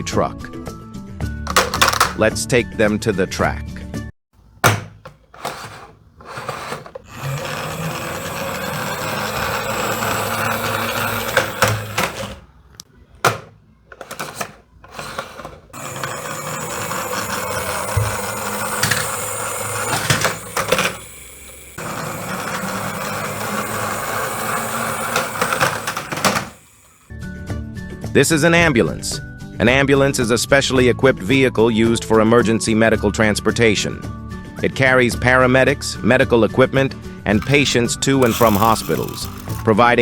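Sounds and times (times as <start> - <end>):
toy clicks and knocks: 1.5 - 2.2, 5.0 - 12.4, 13.3 - 27.1, 37.4 - 39.9
toy trucks rolling on track: 1.5 - 2.2, 5.1 - 12.5, 13.3 - 27.1, 37.3 - 40.0.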